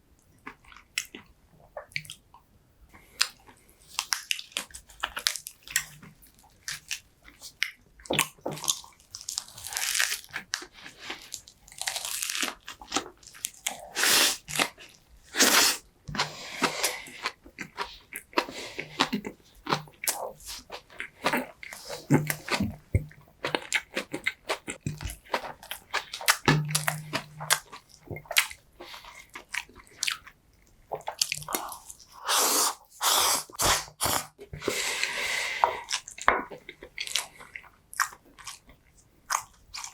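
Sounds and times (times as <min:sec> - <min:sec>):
chewing and crunching food: 0:00.2 - 0:32.3, 0:33.5 - 0:39.9
wet mouth sounds: 0:30.9 - 0:36.2.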